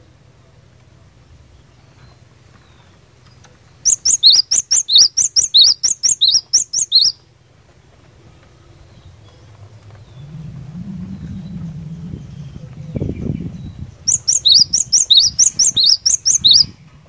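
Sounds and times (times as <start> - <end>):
bird singing high notes: 3.8 - 7.2, 10.0 - 16.7.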